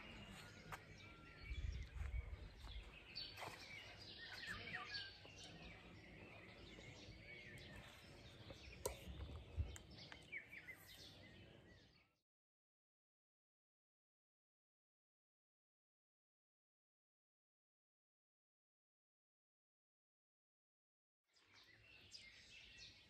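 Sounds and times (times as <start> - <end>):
faint birdsong with trills: 0.0 - 12.2, 21.3 - 23.0.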